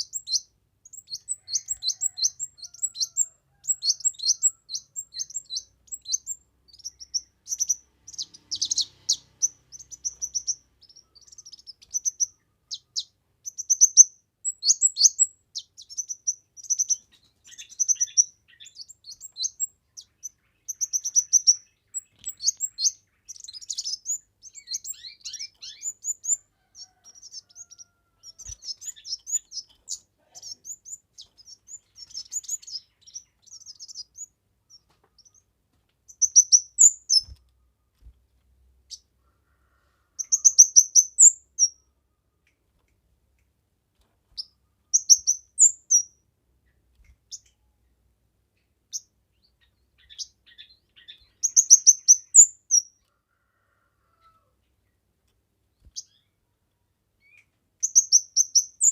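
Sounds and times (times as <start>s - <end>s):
bird chirping and trilling: 0.0s - 35.5s, 36.1s - 37.4s, 40.2s - 41.9s, 44.4s - 46.2s, 48.9s - 53.0s, 57.2s - 58.9s.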